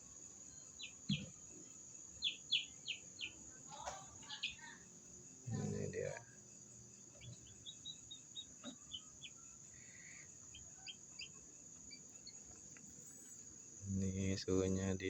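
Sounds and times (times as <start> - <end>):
chicks peeping: 2.2 - 4.7, 7.1 - 9.4.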